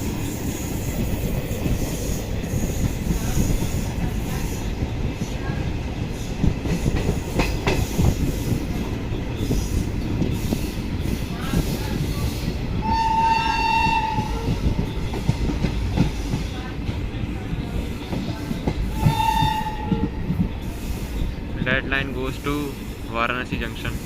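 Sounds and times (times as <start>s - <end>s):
train rumble: 0.0s - 24.0s
train horn blasts: 12.8s - 14.6s, 18.9s - 20.3s.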